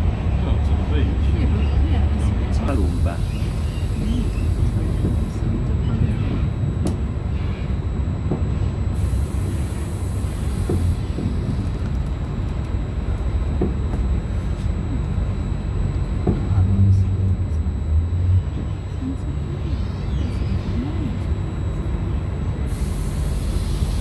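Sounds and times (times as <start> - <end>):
train running gear rumble: 0.0 - 24.0.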